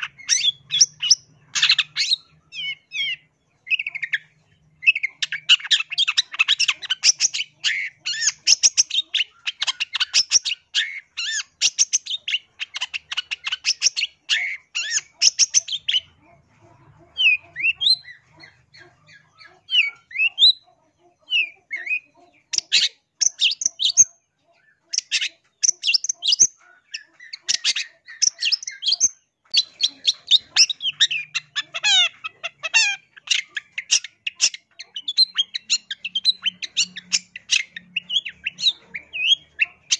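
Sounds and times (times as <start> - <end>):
shrike chattering song: 0.0 - 16.3, 24.8 - 39.9.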